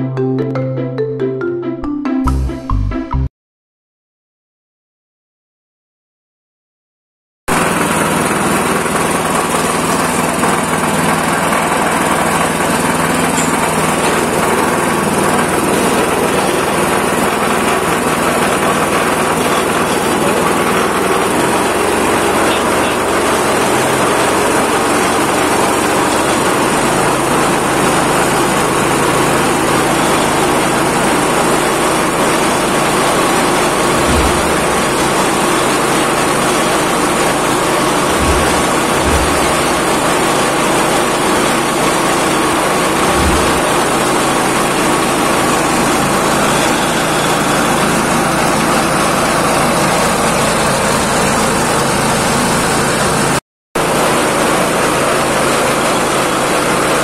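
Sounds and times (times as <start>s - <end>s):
grinding machine running: 7.5s - 57.0s
low bumps: 33.8s - 35.8s, 37.9s - 40.4s, 43.0s - 44.1s.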